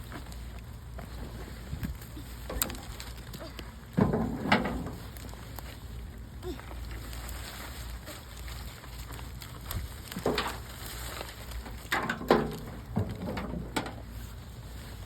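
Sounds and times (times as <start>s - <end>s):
rain falling steadily: 2.0s - 12.7s.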